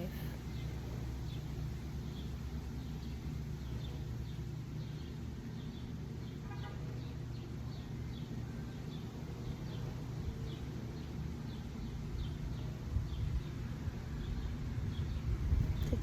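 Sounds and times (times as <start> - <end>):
steady low rumble: 9.2 - 16.0.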